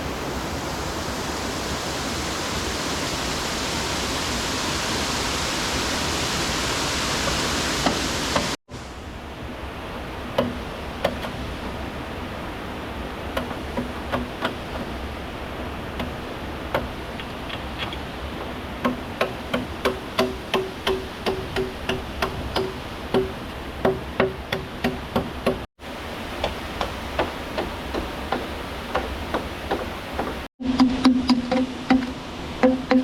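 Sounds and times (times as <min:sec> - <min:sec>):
river water rushing: 0:00.0 - 0:33.0
tool knocking on bamboo: 0:10.4 - 0:11.4, 0:13.4 - 0:14.9, 0:16.0 - 0:25.6, 0:26.4 - 0:33.0.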